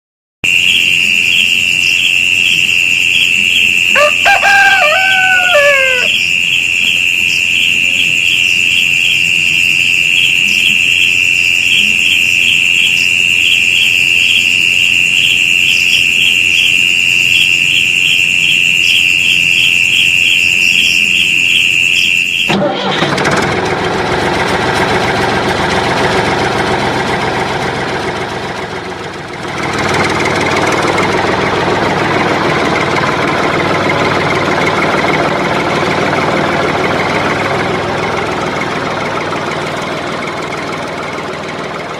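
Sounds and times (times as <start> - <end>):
pulsing high-pitched electronic tone: 0.4 - 22.9, 24.2 - 41.9
engine running: 22.5 - 41.9.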